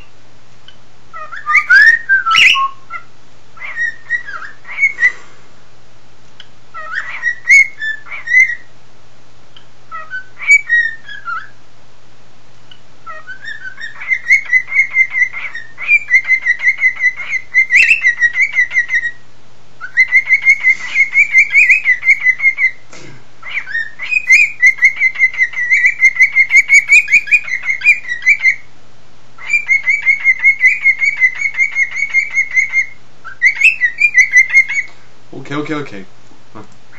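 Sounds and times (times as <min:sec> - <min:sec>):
cockatiel whistling and warbling: 0:01.2 - 0:05.2, 0:06.8 - 0:08.7, 0:09.6 - 0:11.6, 0:13.1 - 0:19.2, 0:19.8 - 0:22.8, 0:23.4 - 0:28.7, 0:29.4 - 0:34.9.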